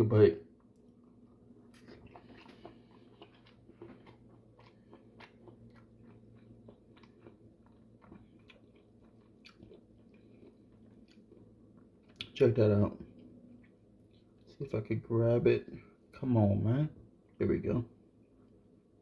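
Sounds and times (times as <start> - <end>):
low steady hum: 0.0 - 19.0
person chewing food: 0.6 - 14.5
mouth clicks and smacks: 1.7 - 11.3.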